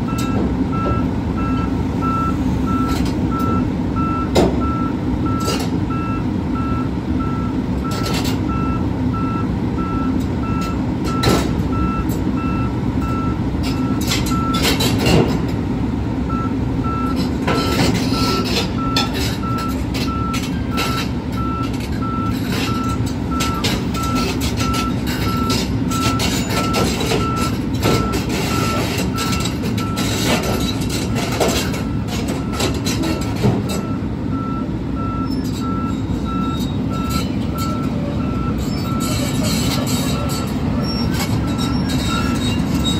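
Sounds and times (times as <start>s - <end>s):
excavator diesel engine running: 0.0s - 42.9s
backup alarm beeping: 33.8s - 39.2s.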